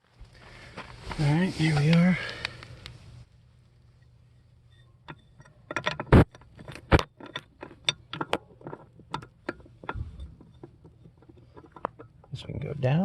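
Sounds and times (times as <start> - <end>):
metallic clicks and clinks: 4.7 - 12.4.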